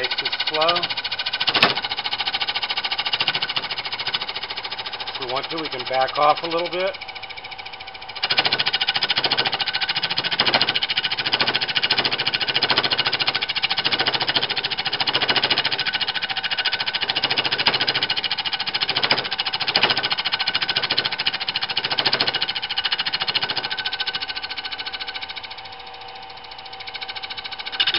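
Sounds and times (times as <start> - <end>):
lathe tool clattering on wood: 0.0 - 27.9.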